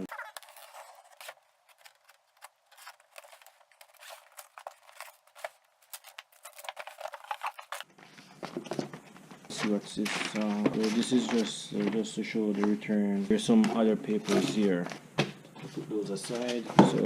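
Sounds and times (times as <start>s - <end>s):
knife scraping through packing tape: 0.1s - 7.8s.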